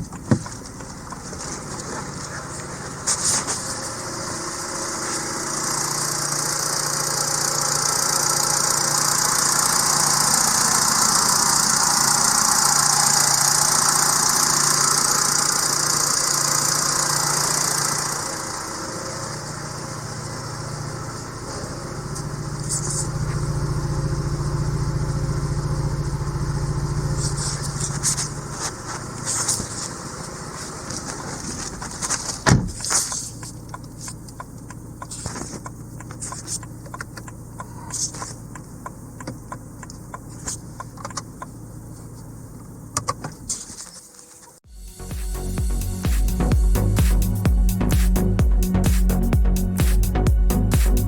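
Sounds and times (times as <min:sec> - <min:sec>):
car engine idling: 0:00.0 - 0:51.0.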